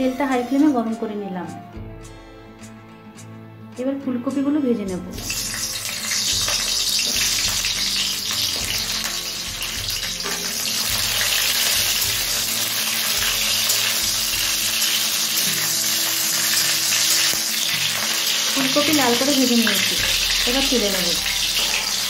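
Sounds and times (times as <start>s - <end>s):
vegetables sizzling in hot oil: 5.2s - 22.0s.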